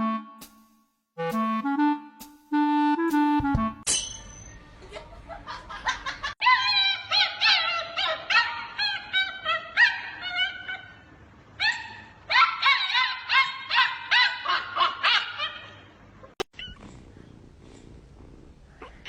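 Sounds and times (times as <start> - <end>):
dog yipping and whining: 6.4 - 11.0, 11.6 - 16.9.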